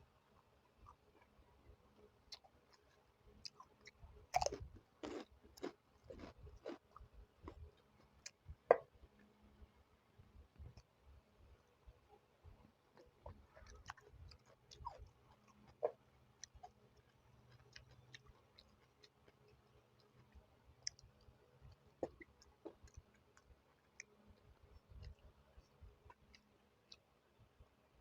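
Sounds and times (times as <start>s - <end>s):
person chewing food: 0.7s - 1.4s, 2.3s - 8.4s, 12.9s - 27.1s.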